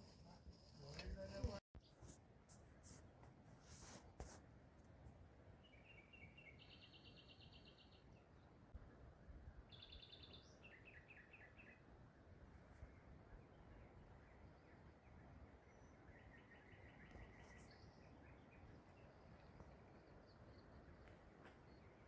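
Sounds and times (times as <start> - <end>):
songbird singing: 5.5 - 12.0, 12.7 - 22.0.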